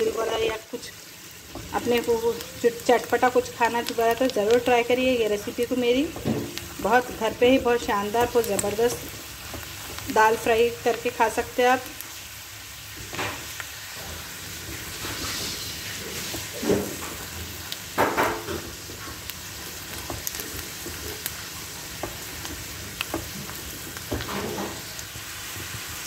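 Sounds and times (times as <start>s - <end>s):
lentils sizzling in hot oil: 0.0s - 26.0s
lentils clicking against pan: 1.5s - 12.1s, 14.6s - 25.8s
spatula scraping pan: 13.1s - 17.4s.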